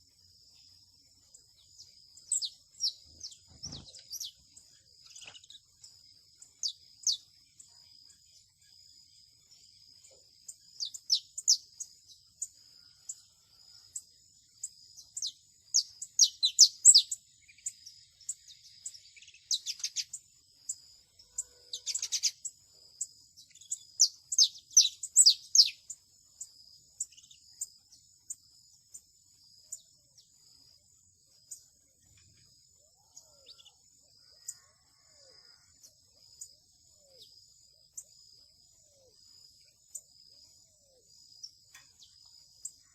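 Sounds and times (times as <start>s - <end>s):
high-pitched insect trill: 0.0s - 42.9s
canary chirping: 21.4s - 22.4s.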